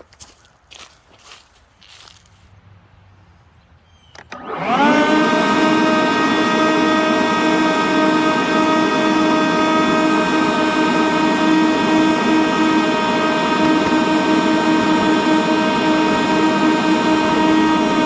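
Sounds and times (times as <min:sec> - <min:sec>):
leaf blower switch click: 0:04.1 - 0:18.0
leaf blowers whining: 0:04.1 - 0:18.0.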